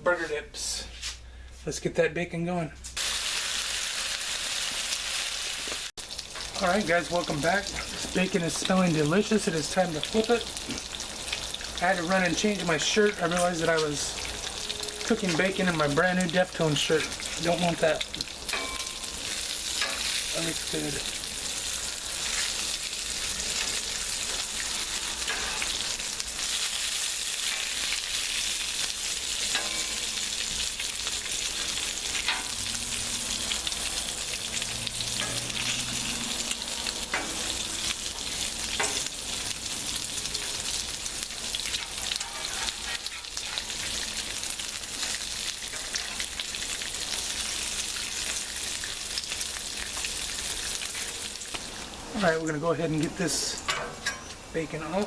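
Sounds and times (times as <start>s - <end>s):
bacon sizzling on a griddle: 3.0s - 55.0s
fat crackling and popping: 15.0s - 55.0s.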